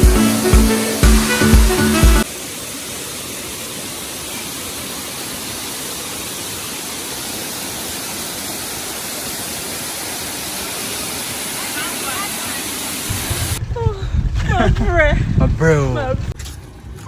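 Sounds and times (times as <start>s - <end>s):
waterfall roaring: 0.0s - 13.6s.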